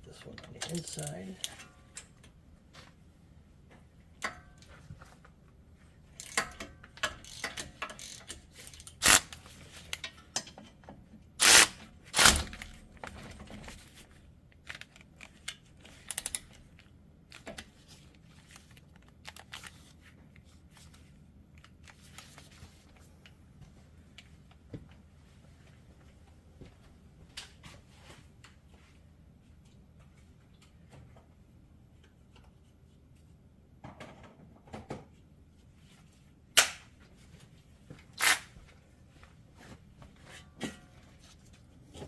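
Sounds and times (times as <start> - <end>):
socket wrench clicking and clanking: 6.2 - 9.4.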